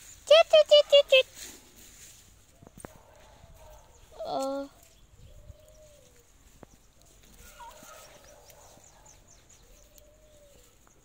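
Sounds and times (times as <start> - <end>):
bird long drawn-out calls: 7.0 - 10.9.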